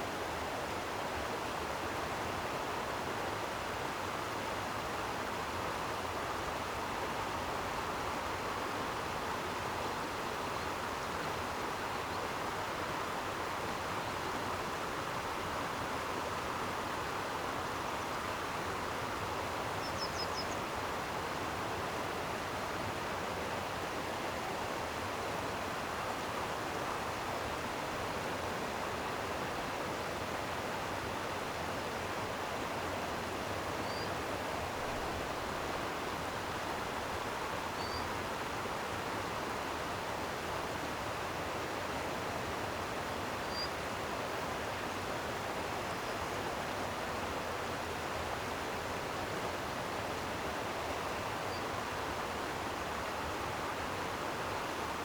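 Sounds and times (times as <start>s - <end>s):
flowing water rushing: 20.6s - 55.0s.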